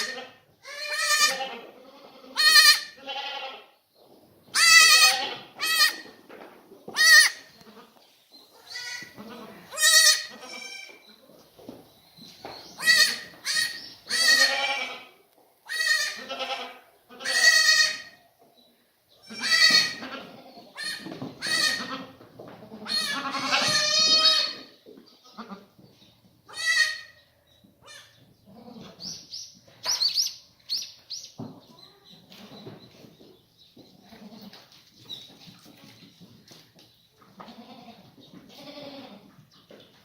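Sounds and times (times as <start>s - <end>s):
goats bleating: 0.0s - 3.7s, 4.6s - 6.1s, 8.6s - 11.0s, 12.8s - 18.2s, 19.2s - 24.7s, 37.4s - 39.3s
faint high-pitched bleats: 0.0s - 3.8s, 12.8s - 18.2s, 19.2s - 22.1s, 22.8s - 25.7s, 26.5s - 27.2s, 37.4s - 39.3s.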